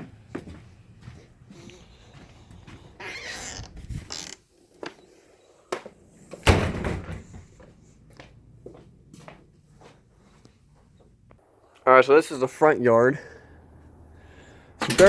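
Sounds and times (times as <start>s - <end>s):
door rustling scrape: 3.0s - 4.4s
door heavy thump: 6.4s - 7.4s.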